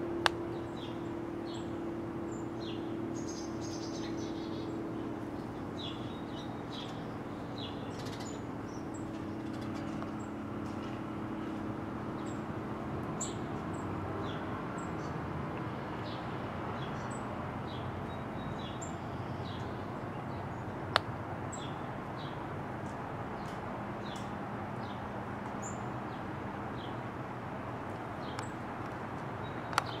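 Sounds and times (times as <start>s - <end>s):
steady background hum: 0.0s - 30.0s
small birds chirping: 0.3s - 12.5s, 13.1s - 15.2s, 15.9s - 20.8s, 21.5s - 22.5s, 28.2s - 30.0s.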